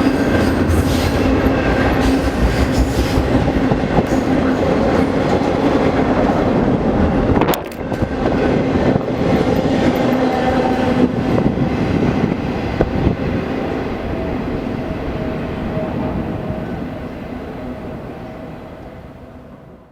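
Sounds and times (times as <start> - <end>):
train wheels clattering on rails: 0.0 - 15.4.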